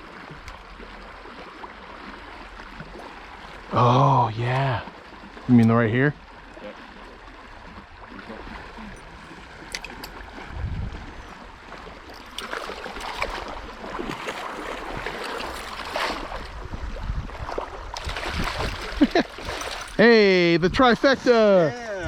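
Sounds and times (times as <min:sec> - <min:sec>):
stream running: 0:00.0 - 0:22.0
splashing in water: 0:06.6 - 0:20.0.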